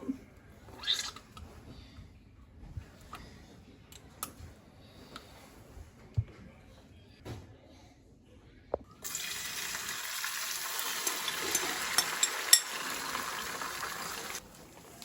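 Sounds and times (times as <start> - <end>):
water running from a tap: 9.0 - 15.0.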